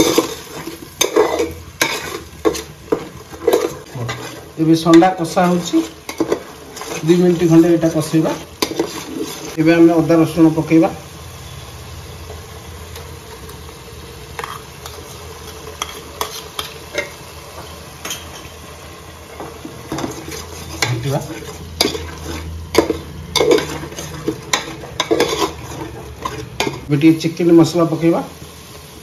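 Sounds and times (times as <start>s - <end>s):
wooden spatula scraping pot: 0.0s - 9.6s, 14.4s - 18.6s, 19.3s - 26.9s
onion paste sizzling in oil: 0.0s - 29.0s.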